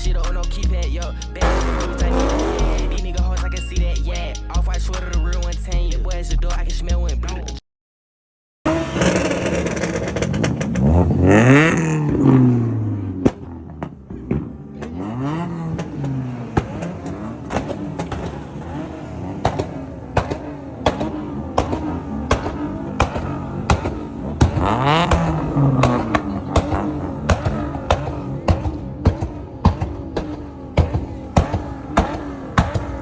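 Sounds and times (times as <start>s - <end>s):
car engine revving: 0.0s - 5.0s, 8.7s - 33.0s
sharp pops: 1.4s - 3.1s, 15.7s - 33.0s.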